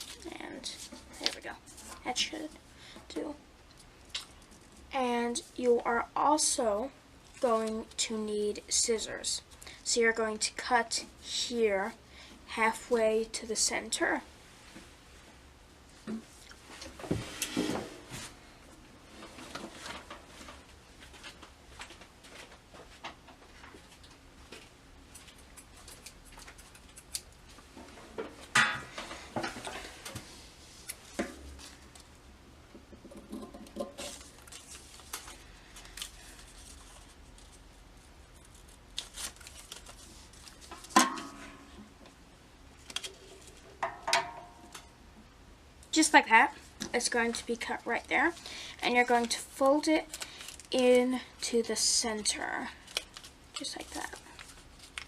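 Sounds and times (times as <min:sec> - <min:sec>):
paper rustling and crinkling: 0:00.0 - 0:02.1, 0:19.2 - 0:27.7, 0:33.9 - 0:41.0, 0:42.8 - 0:43.7, 0:47.3 - 0:50.8, 0:52.7 - 0:55.0.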